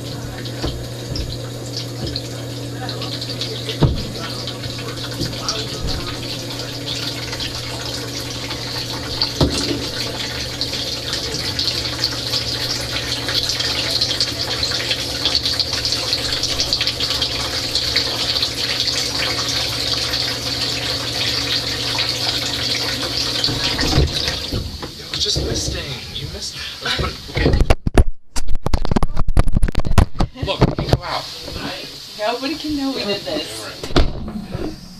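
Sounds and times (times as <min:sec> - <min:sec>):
pump humming: 0:00.0 - 0:27.7
water spraying in dishwasher: 0:00.0 - 0:27.9, 0:30.0 - 0:34.9.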